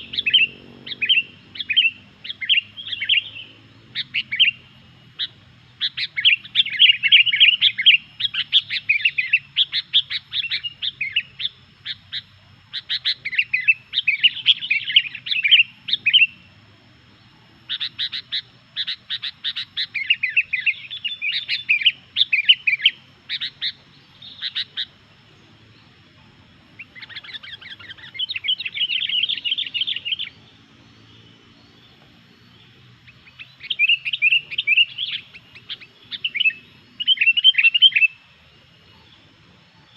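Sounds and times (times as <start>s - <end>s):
bulbul singing chirping notes: 0.0s - 39.9s.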